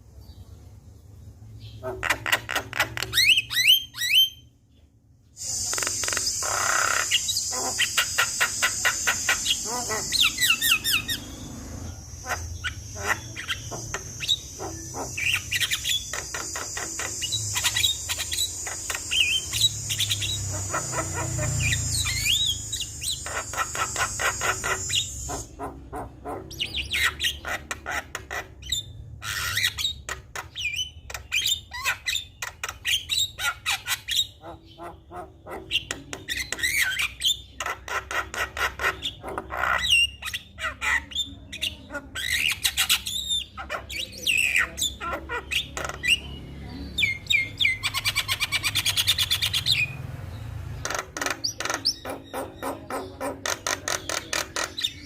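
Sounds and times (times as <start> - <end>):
bird singing chatter and whistles: 5.4 - 25.7.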